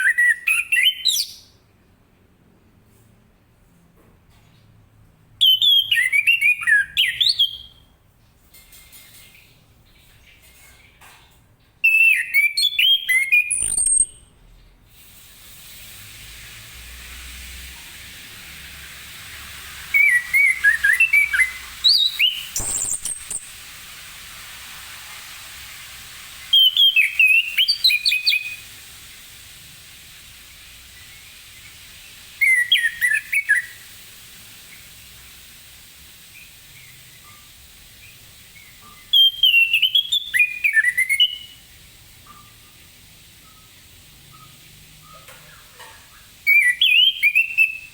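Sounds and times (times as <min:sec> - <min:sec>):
thrush singing whistled notes: 0:11.9 - 0:14.2, 0:19.9 - 0:23.6, 0:26.5 - 0:28.7, 0:32.4 - 0:33.8, 0:38.6 - 0:41.6, 0:46.5 - 0:47.9
steady hiss: 0:14.9 - 0:47.9.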